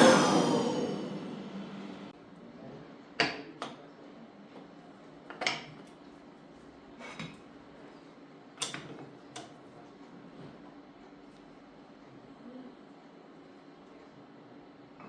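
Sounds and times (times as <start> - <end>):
faint steady hum: 0.0 - 2.1.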